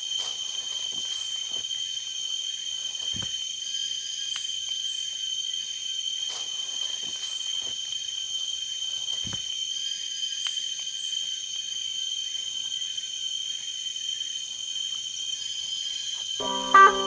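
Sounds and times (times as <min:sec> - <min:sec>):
forest insects trilling: 0:00.0 - 0:16.5.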